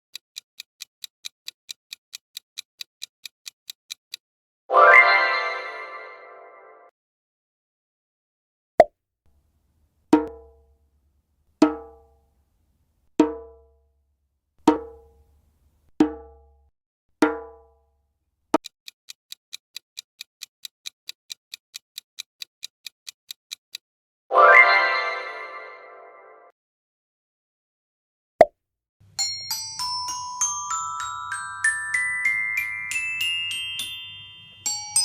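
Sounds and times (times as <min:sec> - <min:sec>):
steady ticking: 0:00.0 - 0:04.2, 0:18.5 - 0:23.8.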